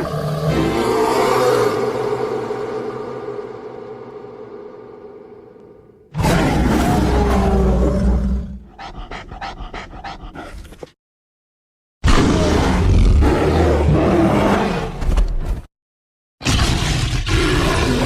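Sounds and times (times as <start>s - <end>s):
deep creature roar: 0.0s - 5.1s, 6.1s - 10.2s, 12.1s - 15.0s, 16.4s - 18.0s.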